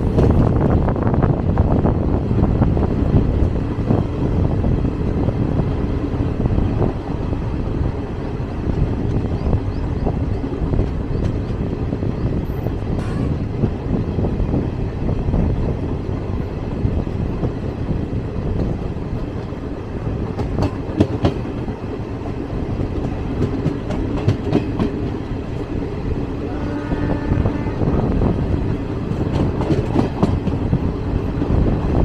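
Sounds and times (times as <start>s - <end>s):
train rumbling: 0.0s - 32.0s
wheels clacking over rail joints: 18.2s - 26.3s, 28.6s - 32.0s.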